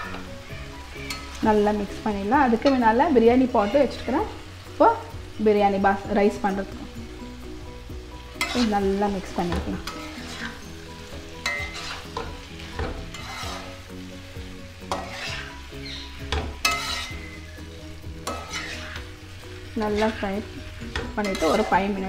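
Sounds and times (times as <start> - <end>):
spatula scraping a pan: 0.0 - 1.4, 8.3 - 14.2, 14.8 - 22.0
prawns sizzling in a frying pan: 0.0 - 22.0.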